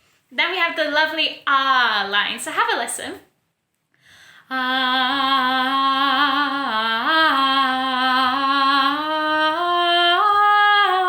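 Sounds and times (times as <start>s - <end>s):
woman singing long held note: 4.4s - 11.0s.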